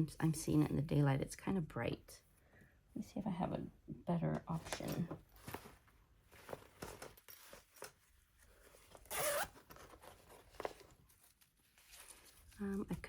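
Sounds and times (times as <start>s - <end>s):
hands rummaging through craft supplies: 4.4s - 9.0s
zipper-like rasp: 9.0s - 9.6s.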